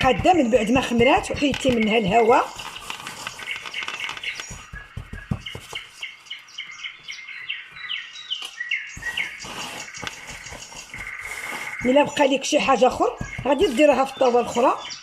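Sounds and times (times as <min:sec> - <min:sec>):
bird chirping falling notes: 0:00.0 - 0:15.0
soft knocks: 0:03.7 - 0:05.9.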